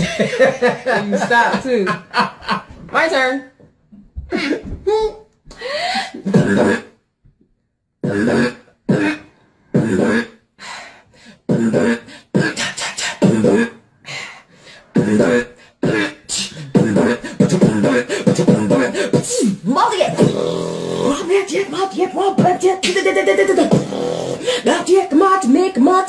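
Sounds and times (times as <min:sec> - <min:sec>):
person beatboxing: 0:06.2 - 0:06.9, 0:08.0 - 0:10.4, 0:11.5 - 0:13.8, 0:14.9 - 0:24.9.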